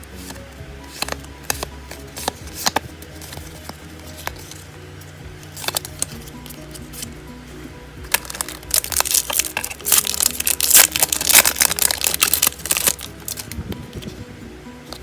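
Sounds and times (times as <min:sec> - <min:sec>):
background music: 0:00.0 - 0:15.0
plastic packaging crinkling: 0:05.4 - 0:07.2, 0:08.0 - 0:14.2.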